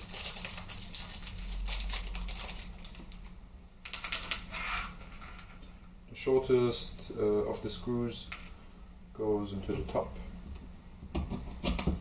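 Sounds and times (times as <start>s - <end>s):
plastic parts clicking and rattling: 3.8s - 4.6s.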